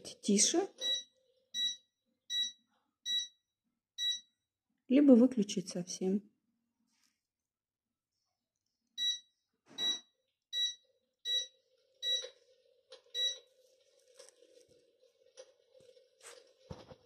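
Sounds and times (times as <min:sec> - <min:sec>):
control unit beeping: 0:00.8 - 0:03.3, 0:09.8 - 0:10.0.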